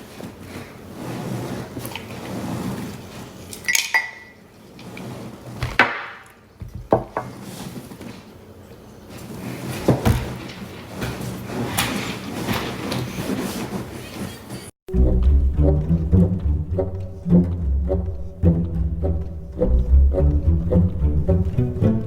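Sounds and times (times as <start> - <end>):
utensils clinking on dishes: 3.6 - 4.4.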